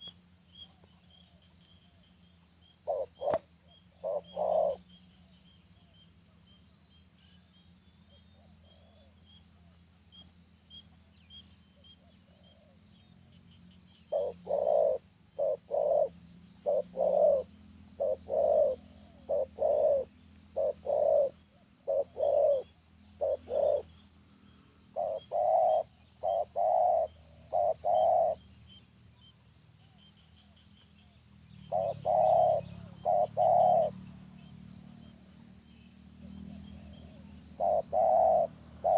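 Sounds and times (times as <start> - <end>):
doves cooing: 2.8 - 4.9, 14.1 - 23.9, 25.0 - 28.4, 31.6 - 34.1, 36.4 - 38.9.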